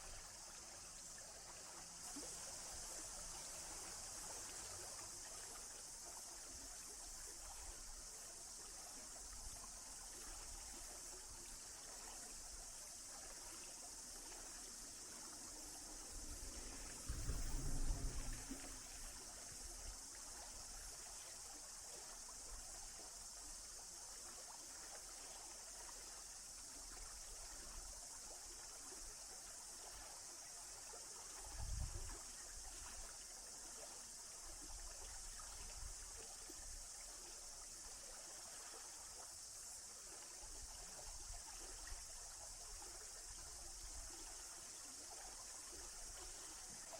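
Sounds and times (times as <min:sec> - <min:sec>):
stream water running: 0:00.0 - 0:46.9
low rumble: 0:17.0 - 0:19.0.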